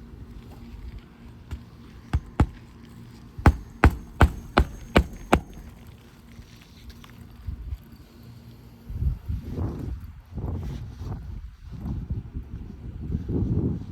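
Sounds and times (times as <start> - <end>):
hammer striking nail: 2.2 - 2.6, 3.5 - 5.8.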